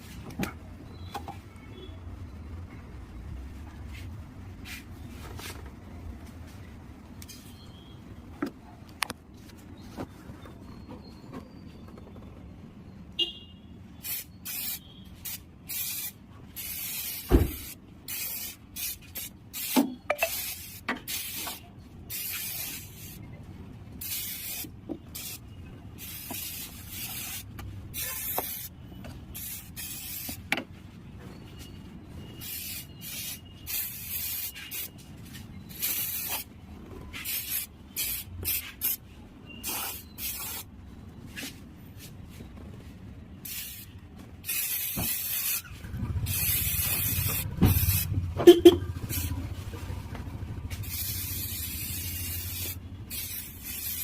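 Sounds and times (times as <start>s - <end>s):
spray can hissing in bursts: 14.0s - 23.2s, 24.0s - 25.4s, 26.0s - 30.5s, 32.4s - 34.9s, 35.7s - 36.5s, 37.1s - 39.0s, 39.6s - 40.7s, 43.4s - 49.4s, 50.7s - 54.0s.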